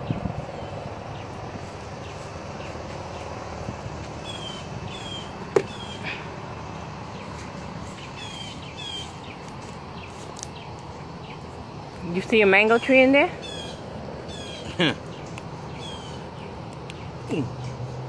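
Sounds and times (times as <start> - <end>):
bird chirping: 4.1 - 18.0.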